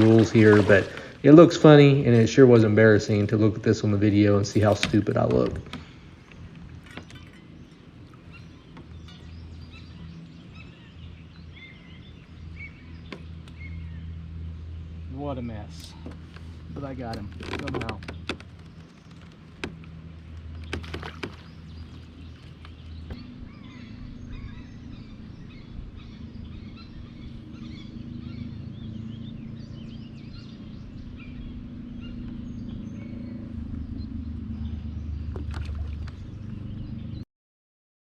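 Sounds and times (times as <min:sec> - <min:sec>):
birds chirping: 0:00.0 - 0:37.2.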